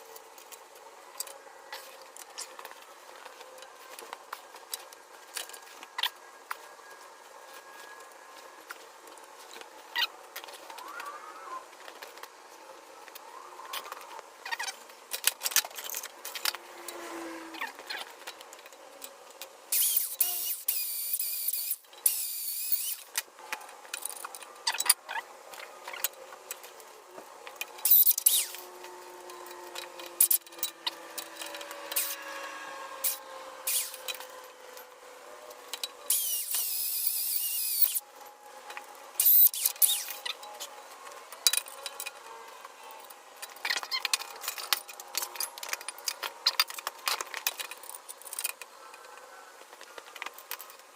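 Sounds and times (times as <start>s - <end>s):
power tool working steel: 19.7s - 23.1s, 27.8s - 38.0s.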